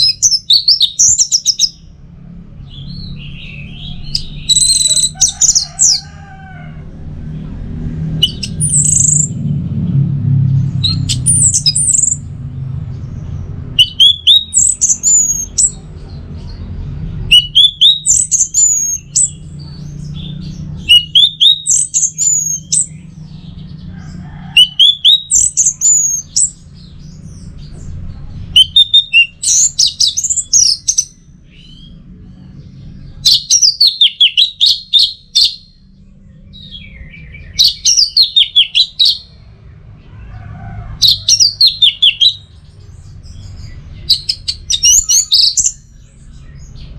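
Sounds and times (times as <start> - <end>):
low rumble: 6.7 - 21.0
thrush singing whistled notes: 8.1 - 9.4, 10.8 - 12.3, 13.6 - 15.8, 17.2 - 19.5, 20.1 - 23.6, 24.6 - 27.5, 28.5 - 32.0, 36.6 - 39.4.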